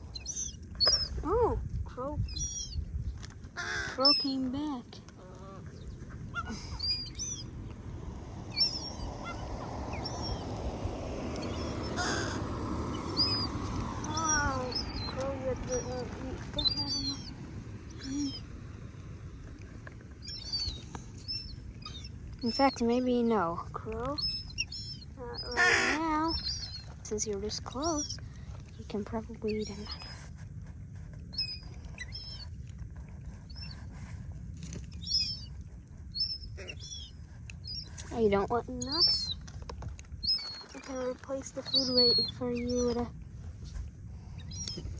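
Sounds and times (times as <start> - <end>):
low background rumble: 0.0 - 44.9
small birds chirping: 0.0 - 44.9
crow cawing: 3.6 - 4.0, 11.9 - 12.6, 25.5 - 26.0.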